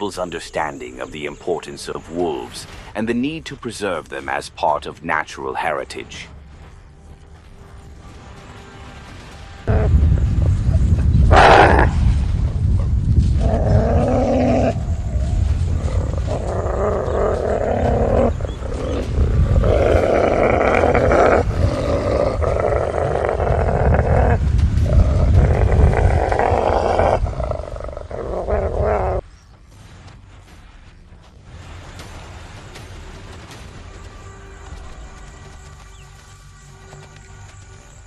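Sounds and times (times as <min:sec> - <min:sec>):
deep rumble: 0:06.3 - 0:36.0
large animal growling: 0:11.2 - 0:12.5, 0:13.2 - 0:29.2.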